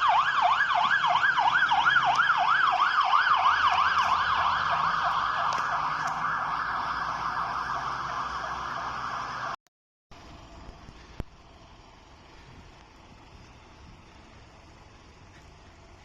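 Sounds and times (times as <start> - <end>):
fire engine siren yelping: 0.0 - 9.6
low engine rumble: 0.0 - 16.0.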